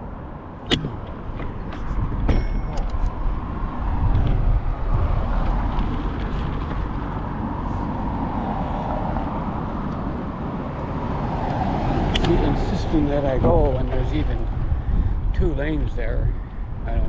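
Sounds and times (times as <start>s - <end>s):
traffic and road noise: 0.0s - 17.0s
wind rumble on microphone: 0.0s - 17.0s.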